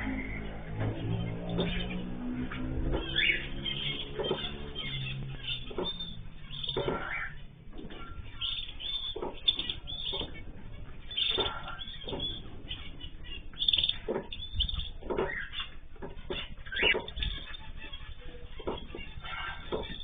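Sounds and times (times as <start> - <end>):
cage birds chirping: 0.0 - 20.0.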